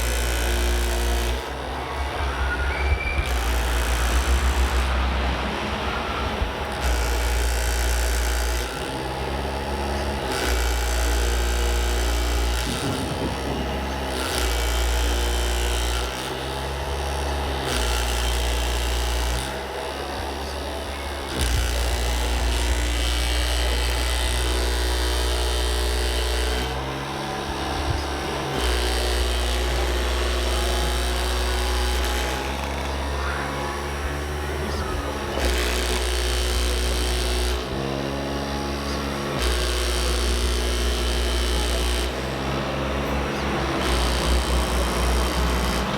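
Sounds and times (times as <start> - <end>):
electric motors and pump whirring: 0.0 - 45.9.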